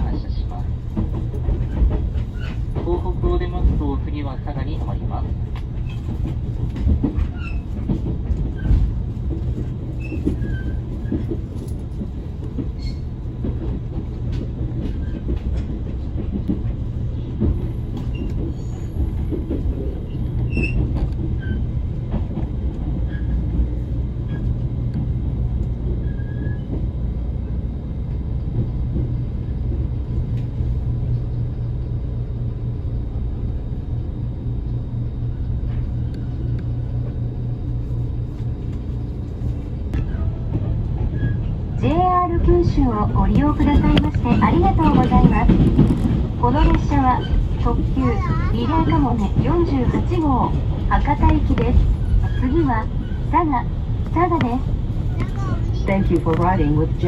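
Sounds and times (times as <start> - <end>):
train running rumble: 0.0 - 57.0.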